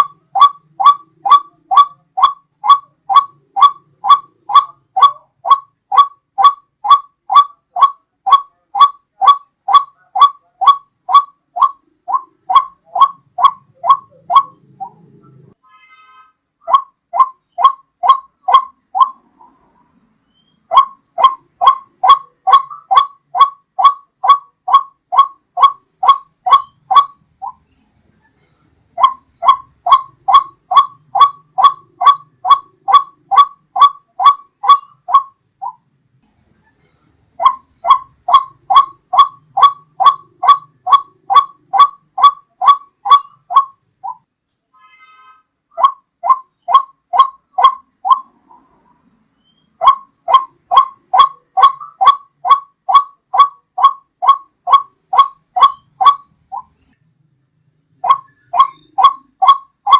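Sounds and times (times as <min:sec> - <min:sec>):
bird call repeated short notes: 0:00.0 - 0:19.6, 0:20.3 - 0:27.9, 0:29.0 - 0:35.8, 0:37.4 - 0:48.4, 0:49.4 - 0:57.0, 0:58.0 - 0:59.9.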